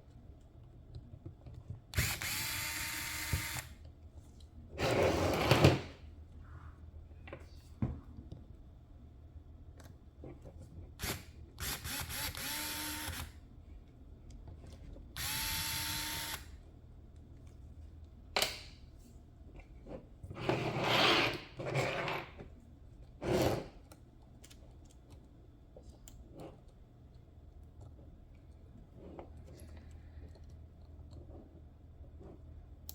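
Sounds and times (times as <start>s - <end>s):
small electric motor whirring: 2.0s - 3.8s, 11.0s - 13.4s, 15.2s - 16.5s.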